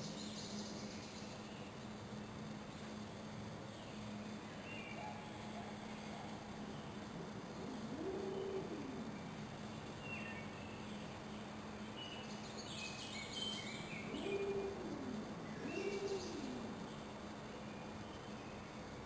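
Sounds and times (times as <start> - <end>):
steady low hum: 0.0 - 19.0
low drawn-out cooing: 5.0 - 9.5, 14.0 - 17.1.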